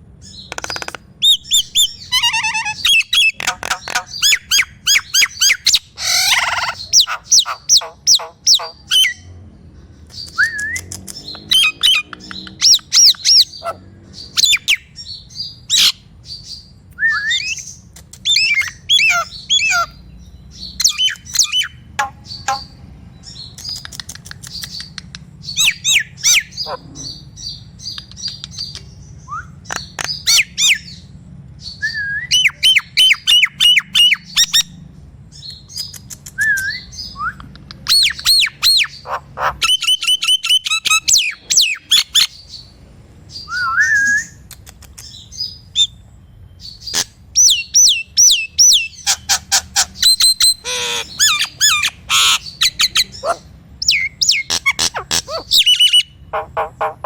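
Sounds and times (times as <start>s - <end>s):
starling calling: 0.2s - 9.4s, 10.1s - 23.8s, 24.4s - 35.8s, 36.7s - 42.7s, 46.6s - 57.0s.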